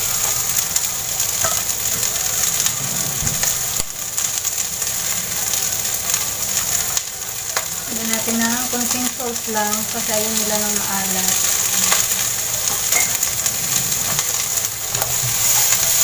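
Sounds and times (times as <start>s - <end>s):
beans sizzling in hot oil: 0.0s - 16.0s.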